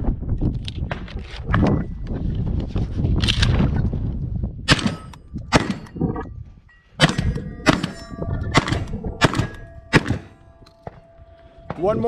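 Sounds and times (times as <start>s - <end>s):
sharp metallic clangs: 6.7s - 12.0s.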